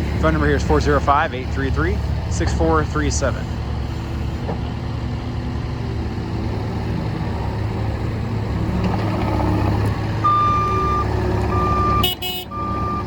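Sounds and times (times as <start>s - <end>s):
diesel engine running: 0.0s - 13.0s
backup alarm beeps: 10.2s - 13.0s.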